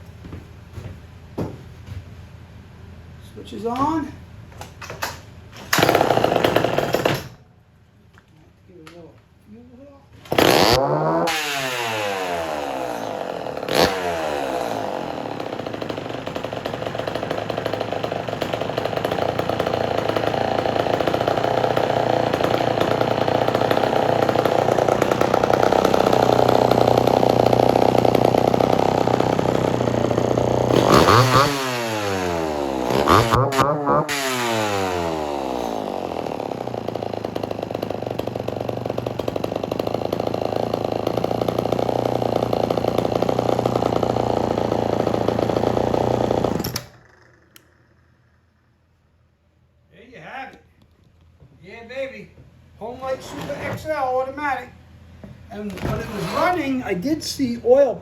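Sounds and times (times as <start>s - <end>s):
chainsaw revving and idling: 5.7s - 7.4s, 10.2s - 48.0s.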